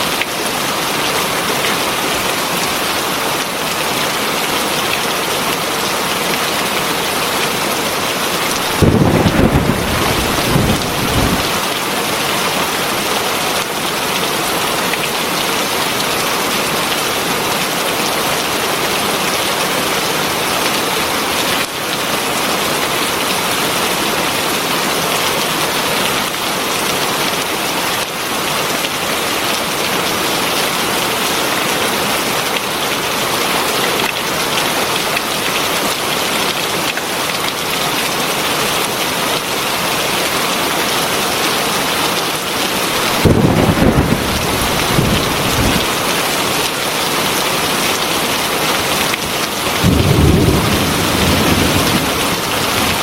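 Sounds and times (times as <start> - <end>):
heavy rain: 0.0 - 53.0
low thunder rumble: 8.6 - 11.6, 43.1 - 45.9, 49.8 - 53.0.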